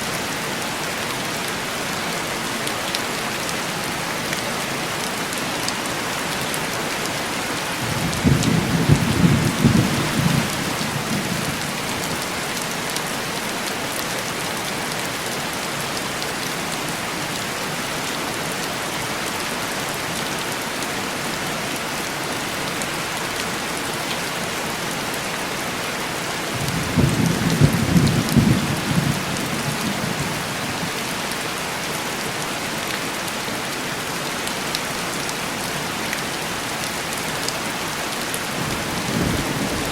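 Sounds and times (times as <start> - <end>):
heavy rain on window glass: 2.6 - 20.9, 22.6 - 33.4, 34.3 - 39.9
distant thunder rolling: 7.8 - 12.0, 26.6 - 30.4.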